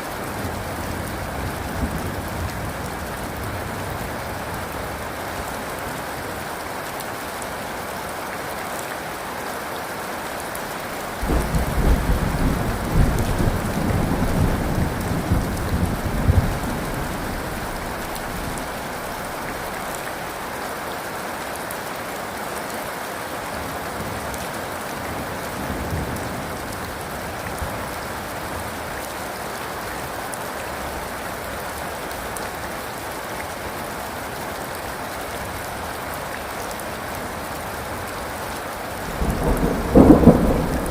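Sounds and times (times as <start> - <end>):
steady rain falling: 0.0 - 40.9
thunder rumbling: 10.6 - 20.4, 39.1 - 40.9.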